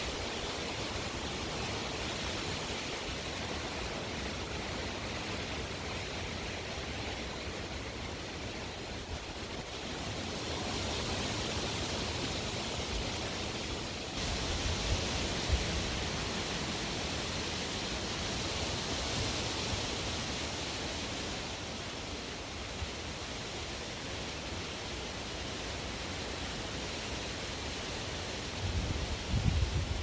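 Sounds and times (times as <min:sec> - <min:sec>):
strong wind gusting: 0:28.6 - 0:30.0.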